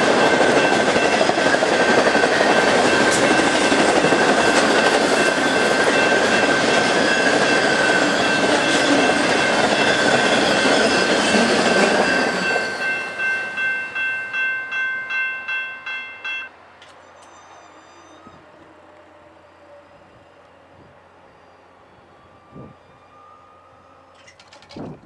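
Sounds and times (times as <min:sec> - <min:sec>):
train wheels rushing on rail: 0:00.0 - 0:14.4
high ringing wheel tones: 0:00.0 - 0:18.4.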